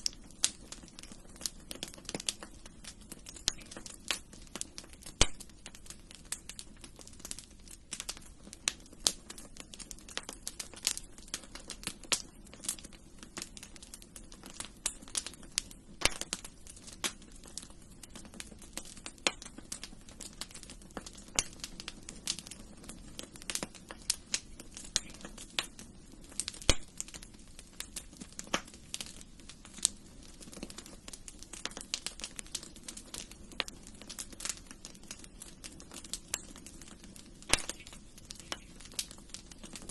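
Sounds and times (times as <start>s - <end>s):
soft low hiss: 0.0s - 39.9s
wood fire crackling: 0.0s - 39.9s.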